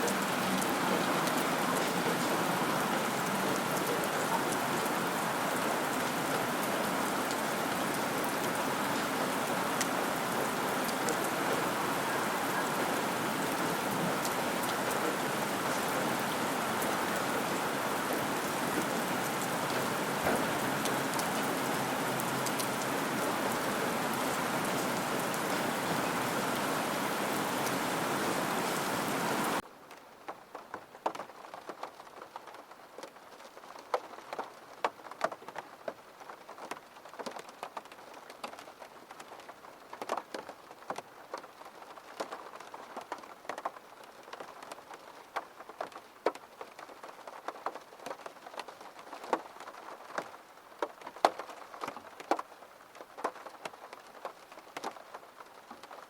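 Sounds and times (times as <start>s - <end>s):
raindrops tapping: 0.0s - 26.7s
heavy rain: 0.0s - 56.0s.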